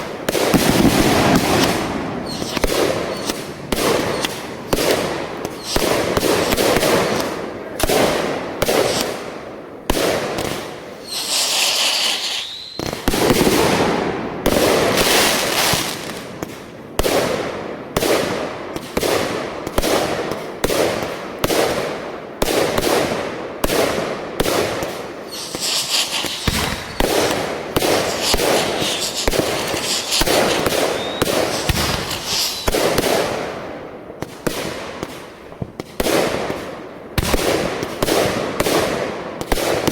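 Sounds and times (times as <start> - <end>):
fireworks bangs and pops: 0.0 - 39.9
high hissing: 1.6 - 6.6, 10.9 - 13.0, 25.2 - 33.0.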